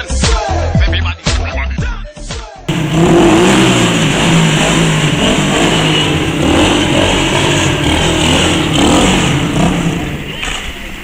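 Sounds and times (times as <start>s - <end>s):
pit bike engine revving: 2.7s - 10.8s
steady rush of noise: 2.7s - 11.0s.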